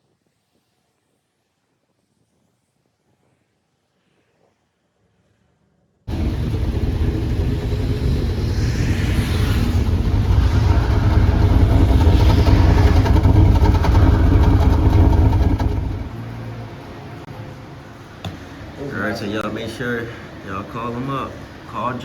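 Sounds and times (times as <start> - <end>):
car engine exhaust note: 6.1 - 16.6.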